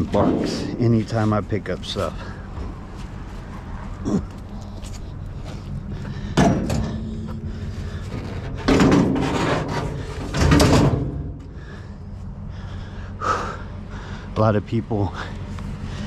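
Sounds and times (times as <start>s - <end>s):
steady low hum: 0.0s - 16.0s
bangs and clatters: 8.4s - 11.4s.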